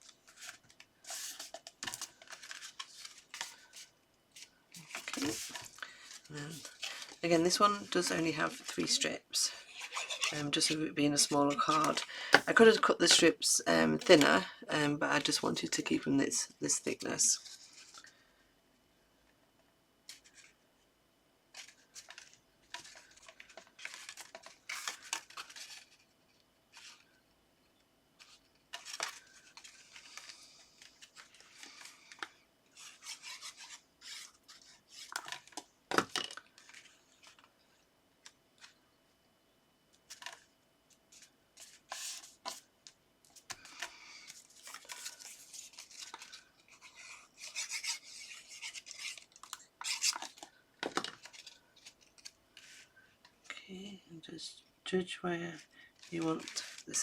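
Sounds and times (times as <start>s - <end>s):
paper rustling and scraping: 0.0s - 9.1s, 9.7s - 13.3s, 21.5s - 26.1s, 28.2s - 35.7s, 41.1s - 42.7s, 43.3s - 52.9s, 56.0s - 57.0s.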